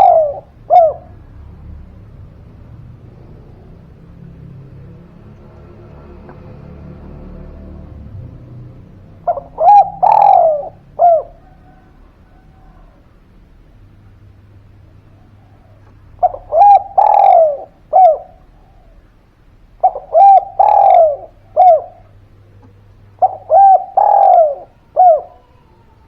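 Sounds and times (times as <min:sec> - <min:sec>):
dove cooing: 0:00.0 - 0:01.3, 0:08.9 - 0:13.5, 0:14.8 - 0:26.0.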